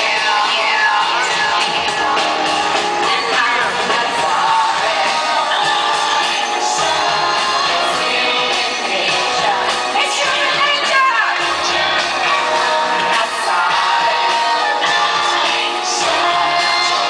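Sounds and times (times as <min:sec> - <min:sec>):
person singing: 0:00.0 - 0:10.6, 0:11.3 - 0:17.0
loud amplified pop music: 0:00.0 - 0:17.0.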